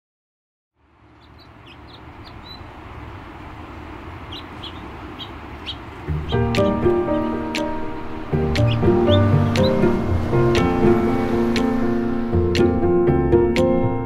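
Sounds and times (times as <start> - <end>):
birds chirping: 0.9 - 12.8
steady rush: 1.3 - 13.7
music: 6.1 - 14.0.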